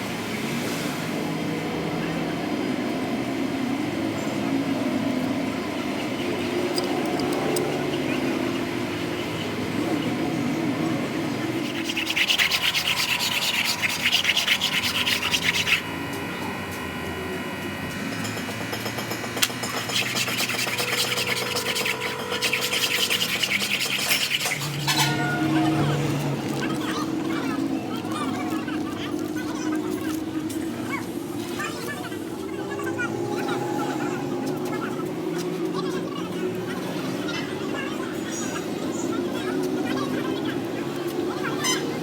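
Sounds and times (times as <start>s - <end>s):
scraping strokes on metal part: 11.5s - 17.0s, 17.6s - 26.1s.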